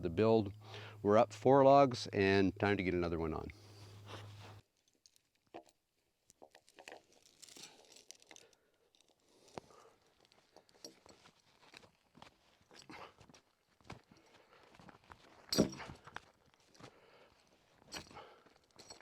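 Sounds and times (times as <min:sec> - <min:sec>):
faint crunches and clicks: 0:04.6 - 0:12.9.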